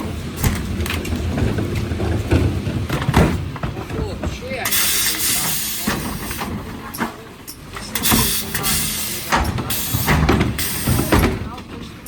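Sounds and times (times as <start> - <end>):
refuse lorry engine running: 0.0 - 12.0
air hiss bursts: 8.0 - 11.2.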